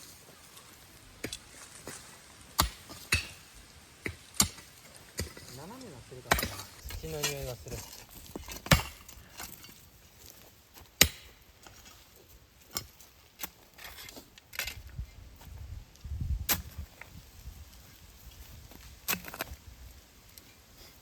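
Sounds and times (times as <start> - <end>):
earth scraping and shifting: 0.0 - 21.0
digging tool striking soil: 1.2 - 9.8, 10.9 - 12.0, 12.7 - 14.9, 16.4 - 16.9, 19.0 - 19.6.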